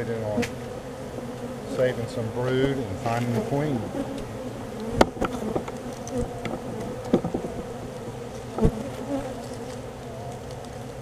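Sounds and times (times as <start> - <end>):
honeybee colony buzzing: 0.0 - 11.0
sharp knocks: 6.4 - 7.6.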